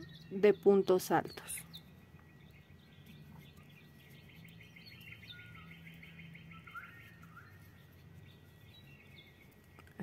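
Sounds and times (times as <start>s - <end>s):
bird trilling: 0.0s - 9.5s.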